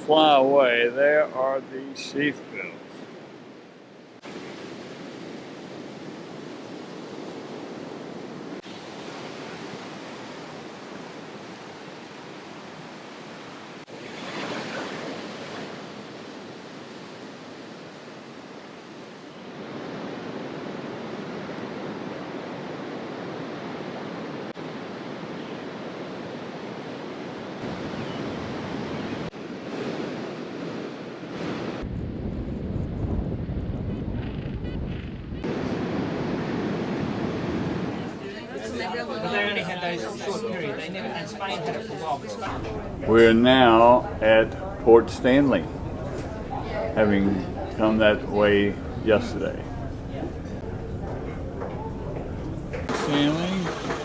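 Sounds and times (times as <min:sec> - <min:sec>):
surf washing on shore: 0:00.0 - 0:33.3, 0:35.4 - 0:54.0
wind: 0:00.0 - 0:54.0.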